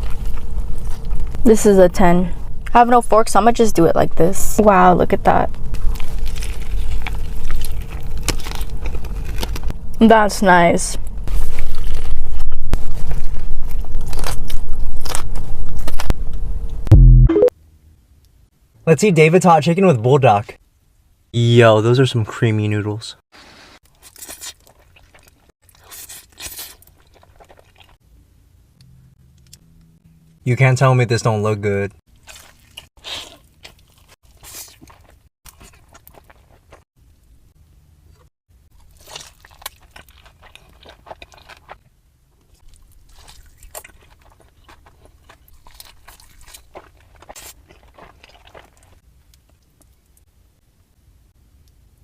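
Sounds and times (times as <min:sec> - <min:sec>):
person crunching fried chicken: 0:05.7 - 0:09.7, 0:11.3 - 0:16.1, 0:23.8 - 0:28.0, 0:32.1 - 0:36.8, 0:38.7 - 0:50.0.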